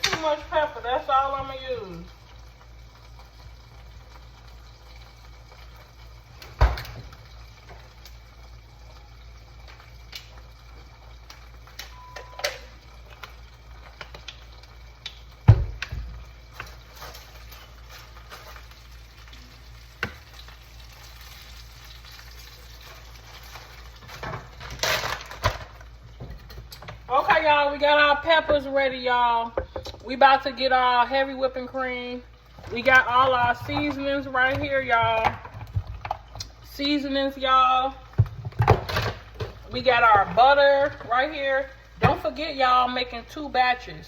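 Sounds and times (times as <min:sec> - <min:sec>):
chicken sizzling in a pan: 0:00.0 - 0:27.1
kitchen knocks and clatters: 0:06.4 - 0:07.8, 0:15.4 - 0:18.8, 0:22.8 - 0:27.5, 0:28.2 - 0:28.8, 0:29.5 - 0:30.1, 0:32.6 - 0:36.6, 0:38.0 - 0:41.2.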